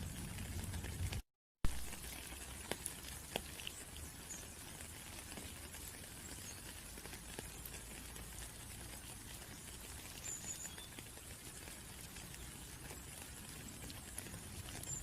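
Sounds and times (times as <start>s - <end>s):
raindrops ticking: 0.0s - 15.0s.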